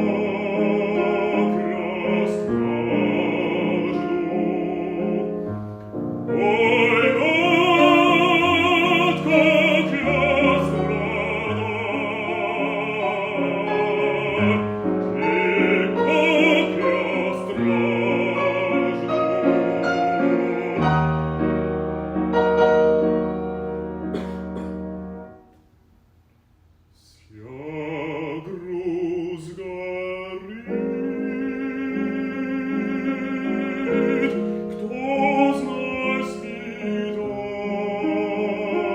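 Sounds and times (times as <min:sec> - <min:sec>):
bass voice singing: 0:00.0 - 0:05.5, 0:06.3 - 0:21.6
piano accompaniment: 0:00.0 - 0:25.7, 0:27.6 - 0:38.9.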